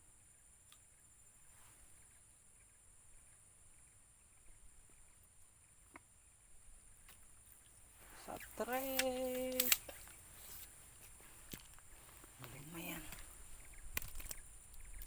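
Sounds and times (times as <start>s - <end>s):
soft clicks: 8.4s - 10.2s.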